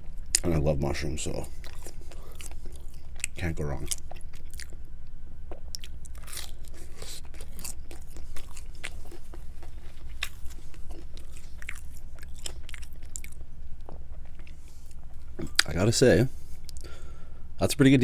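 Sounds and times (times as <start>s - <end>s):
steady low hum: 0.0s - 18.0s
wet chewing and mouth clicks: 1.5s - 4.9s, 5.5s - 15.8s.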